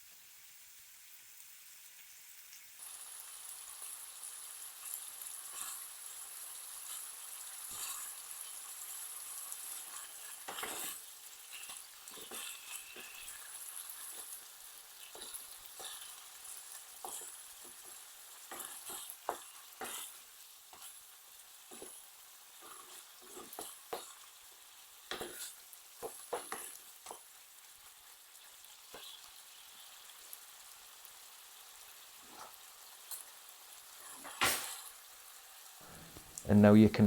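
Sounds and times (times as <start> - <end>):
chicken sizzling in oil: 0.0 - 36.8
utensil scraping pan: 9.9 - 14.3.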